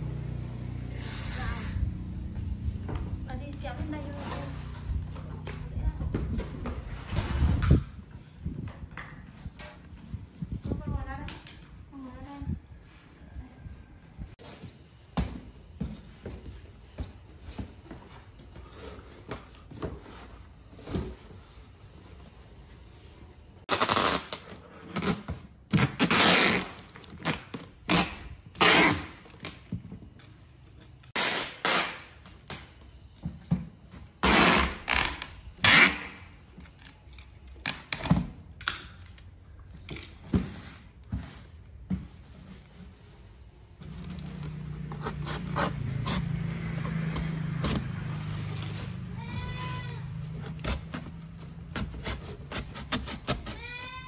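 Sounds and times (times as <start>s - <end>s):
packing tape ripping: 23.7s - 29.6s, 31.2s - 32.7s, 34.2s - 39.3s.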